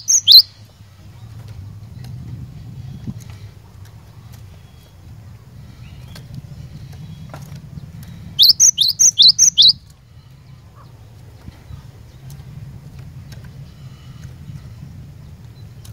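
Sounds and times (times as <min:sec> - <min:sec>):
bird whistling song: 0:00.0 - 0:00.7, 0:04.4 - 0:09.9
steady low hum: 0:00.0 - 0:15.9.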